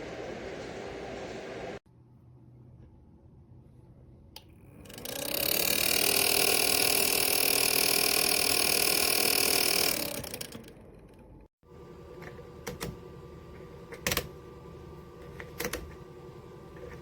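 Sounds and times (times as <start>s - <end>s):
heater fan motor whirring: 4.6s - 10.9s, 11.6s - 17.0s.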